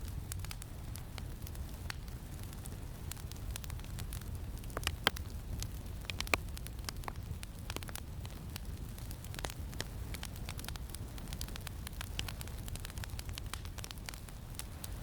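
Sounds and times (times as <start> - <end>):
campfire crackling: 0.0 - 15.0
loud fire snaps: 0.0 - 15.0.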